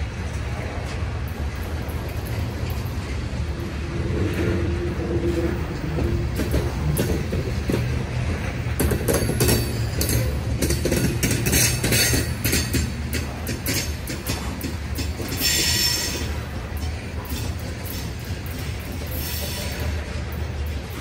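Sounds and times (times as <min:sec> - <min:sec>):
clanking freight cars: 0:00.0 - 0:21.0
train wheels rumbling on rail: 0:00.0 - 0:21.0
high wheel squeal: 0:15.3 - 0:16.5.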